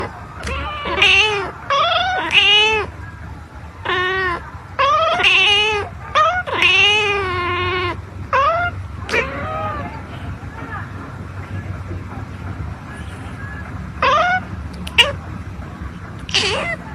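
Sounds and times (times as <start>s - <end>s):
kitten meowing: 0.0s - 2.9s, 3.8s - 10.0s, 14.0s - 15.2s, 16.2s - 16.8s.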